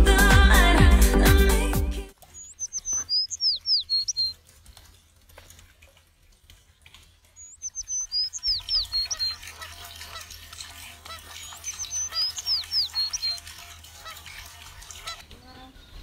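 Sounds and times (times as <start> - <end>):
background music: 0.0 - 2.1
songbird whistled phrase: 2.4 - 4.3.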